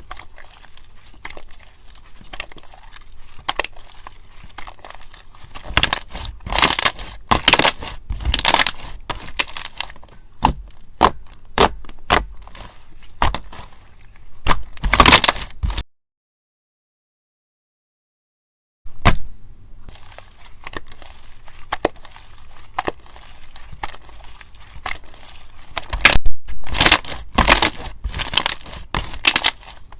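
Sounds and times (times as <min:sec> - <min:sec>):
slime crackling and popping: 0:00.0 - 0:13.8, 0:14.4 - 0:15.8, 0:19.9 - 0:29.9.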